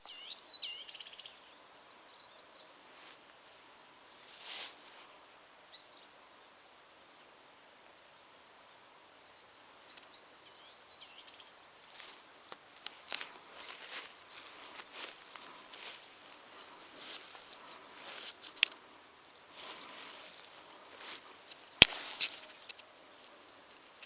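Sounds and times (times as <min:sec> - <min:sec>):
steady hiss: 0:00.4 - 0:24.0
rustling: 0:02.9 - 0:05.1, 0:11.8 - 0:24.0.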